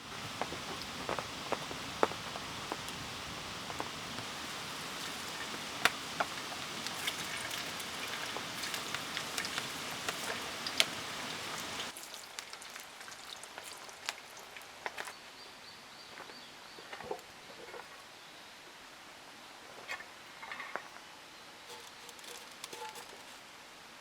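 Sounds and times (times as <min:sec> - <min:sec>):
rain drops tapping: 0:00.0 - 0:12.0
light rain with drips: 0:00.0 - 0:15.1.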